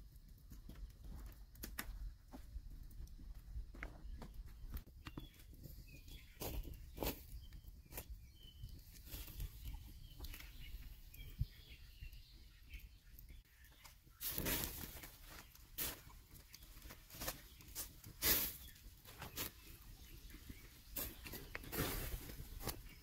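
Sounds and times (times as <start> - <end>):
birds chirping: 2.3 - 23.0
rustle: 14.1 - 20.1, 20.9 - 23.0.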